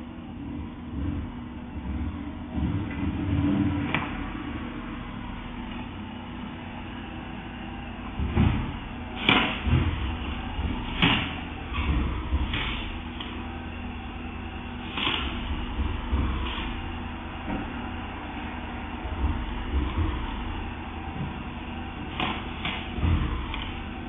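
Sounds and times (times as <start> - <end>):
steady low rumble: 0.0 - 24.0
sharp knocks and thuds: 8.2 - 12.9, 19.2 - 24.0.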